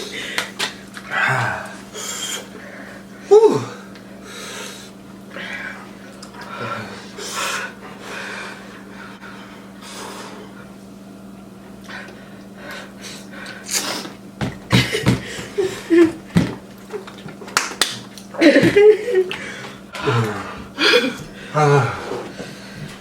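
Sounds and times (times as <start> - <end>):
lip smacks: 13.4 - 14.1.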